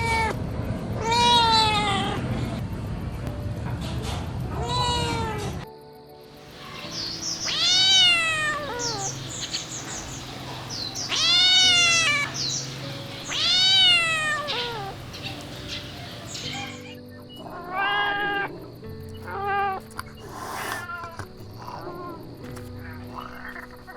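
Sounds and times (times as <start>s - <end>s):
kitten chirps: 6.5s - 18.5s
kitten meowing: 6.5s - 18.5s.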